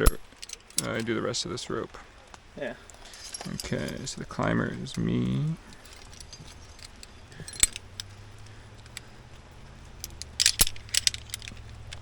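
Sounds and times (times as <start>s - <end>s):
metal climbing gear clinking: 0.0s - 1.3s, 2.8s - 12.0s.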